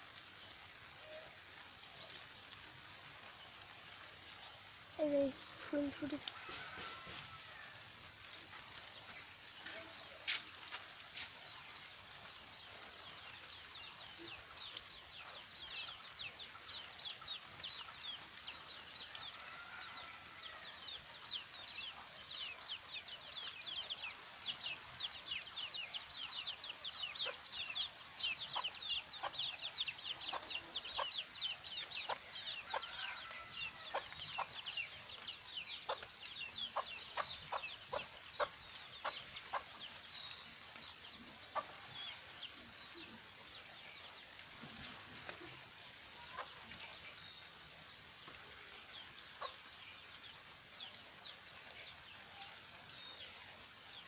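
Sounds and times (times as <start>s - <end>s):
steady rain: 0.0s - 54.0s
chicken clucks: 36.7s - 39.7s.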